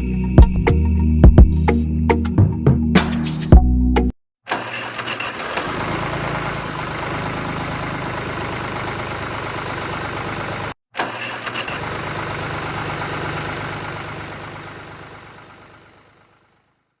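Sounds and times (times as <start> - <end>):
small engine running: 4.5 - 16.9.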